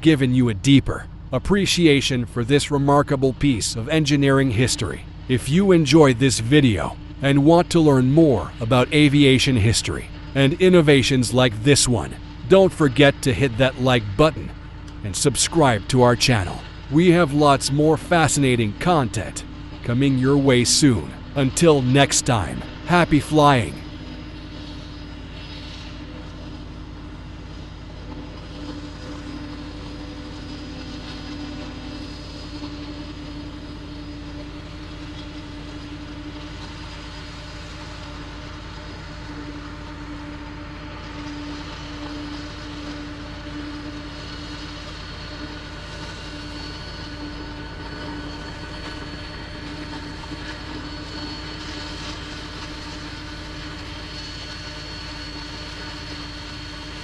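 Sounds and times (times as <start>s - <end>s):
jet engines droning: 0.0s - 57.0s.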